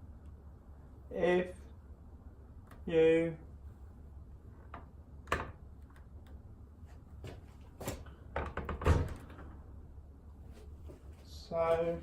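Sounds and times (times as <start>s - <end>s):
dishwasher clunks and rattles: 8.4s - 9.5s.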